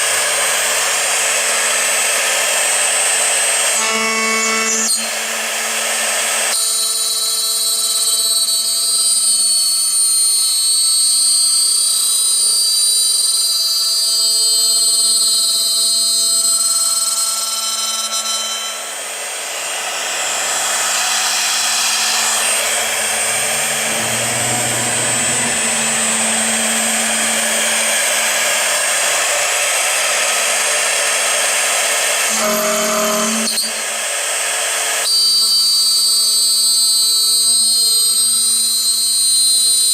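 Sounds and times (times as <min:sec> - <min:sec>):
drilling machine spindle whine: 0:00.0 - 0:39.9
low hum: 0:20.4 - 0:28.9.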